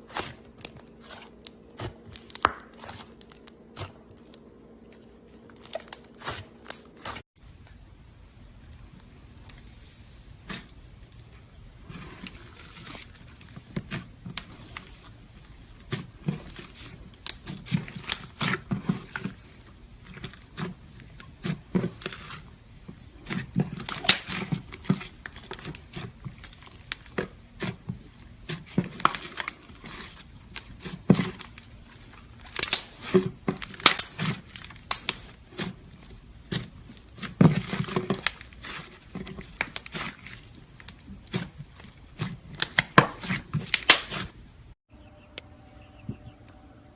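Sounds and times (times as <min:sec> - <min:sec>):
sticky slime pops and crackles: 0:23.2 - 0:24.8, 0:32.4 - 0:35.7, 0:42.2 - 0:44.3.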